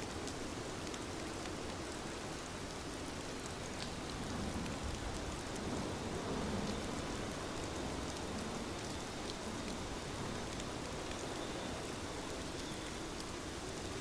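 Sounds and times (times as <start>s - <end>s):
steady rain hiss: 0.0s - 14.0s
raindrop ticks: 0.1s - 13.4s.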